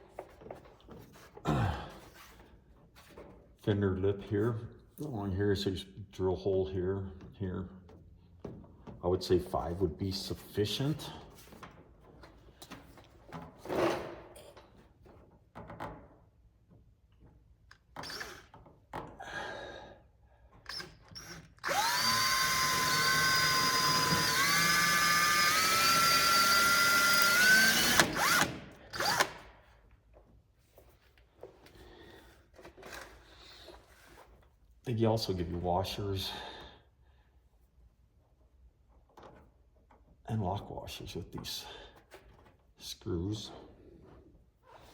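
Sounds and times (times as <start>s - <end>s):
power drill whine: 18.0s - 18.5s, 20.7s - 29.4s.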